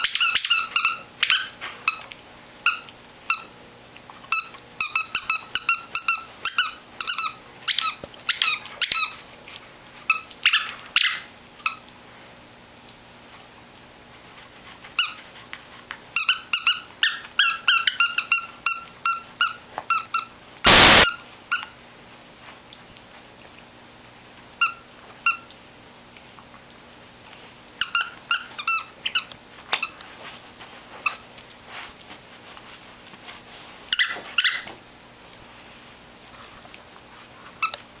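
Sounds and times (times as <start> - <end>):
loud burst of noise: 20.7 - 21.0.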